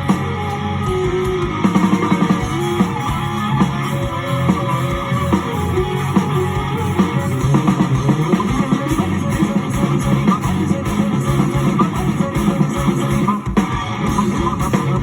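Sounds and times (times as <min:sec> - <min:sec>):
guitar plucking melodic notes: 0:00.0 - 0:09.4
sustained low bass notes: 0:00.0 - 0:13.3.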